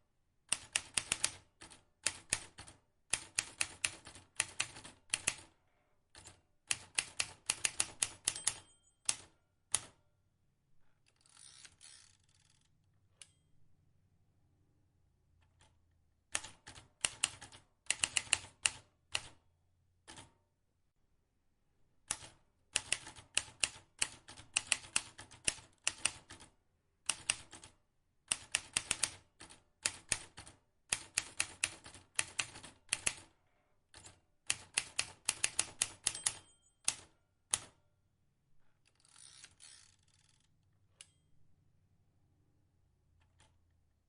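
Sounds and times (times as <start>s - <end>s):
typewriter key strikes: 7.4s - 9.3s, 34.9s - 37.7s.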